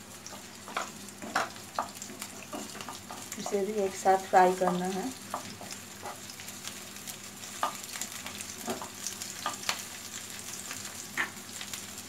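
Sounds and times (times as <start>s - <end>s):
onions sizzling in hot oil: 0.0s - 12.0s
wooden spatula scraping and tapping: 0.2s - 3.9s, 4.6s - 6.4s, 7.5s - 9.8s.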